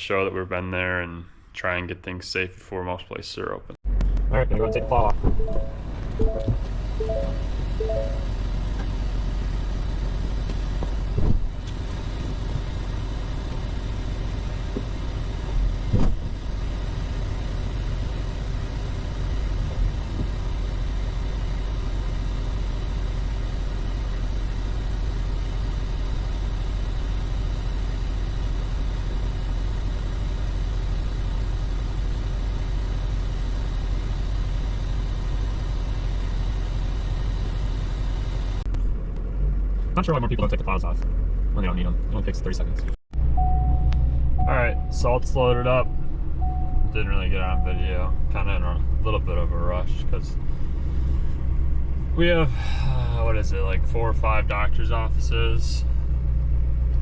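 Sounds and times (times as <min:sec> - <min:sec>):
truck engine idling: 0:43.2 - 0:57.0.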